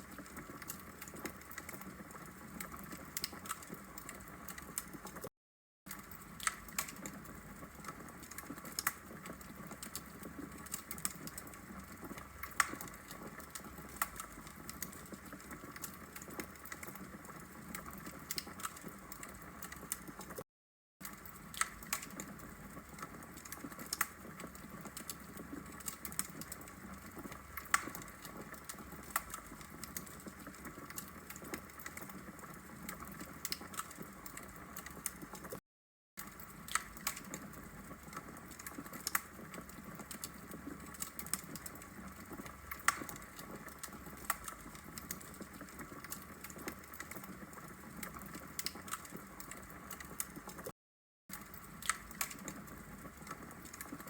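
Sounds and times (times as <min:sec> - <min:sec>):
logs crackling in fireplace: 0:00.0 - 0:05.3, 0:05.9 - 0:20.4, 0:21.0 - 0:35.6, 0:36.2 - 0:50.7, 0:51.3 - 0:54.0.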